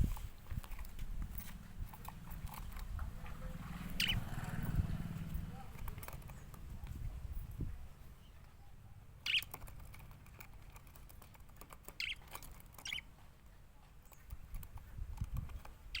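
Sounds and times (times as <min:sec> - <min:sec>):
budgerigars chirping: 0:03.0 - 0:06.8, 0:09.2 - 0:09.6, 0:12.0 - 0:13.1.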